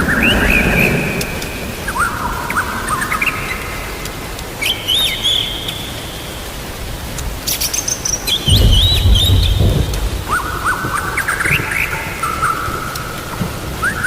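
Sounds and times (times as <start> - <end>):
rain hissing: 0.0 - 14.0
songbird singing whistled notes: 4.6 - 6.4, 7.4 - 13.0.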